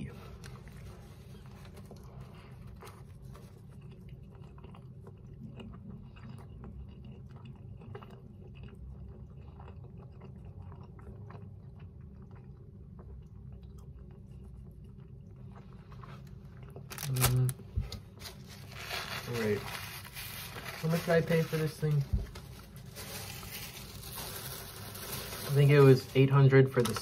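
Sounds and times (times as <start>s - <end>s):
man chewing food: 0.0s - 20.9s
steady low hum: 0.0s - 27.0s.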